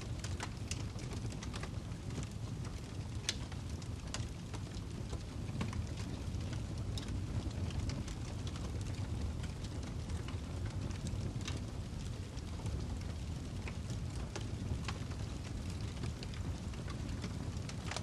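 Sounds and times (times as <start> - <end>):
fireplace logs crackling and popping: 0.0 - 18.0
low rumble of flames: 0.0 - 18.0.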